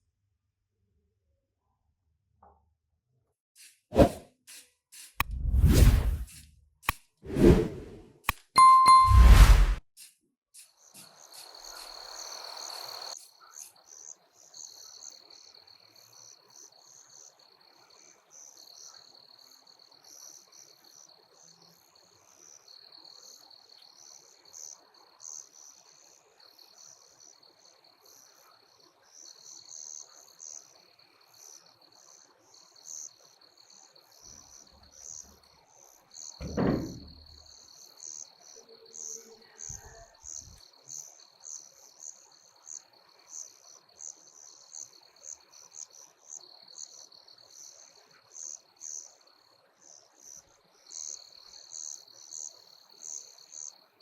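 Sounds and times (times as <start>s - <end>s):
hiss: 3.6s - 6.5s
crickets chirping: 10.8s - 54.0s
short knock: 36.4s - 37.3s.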